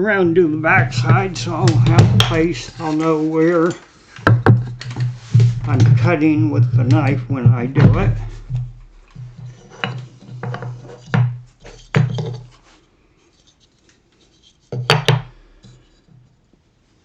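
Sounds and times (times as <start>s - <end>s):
faint scratching: 0.0s - 4.0s, 4.6s - 14.6s
wooden knocks on workbench: 14.8s - 15.3s.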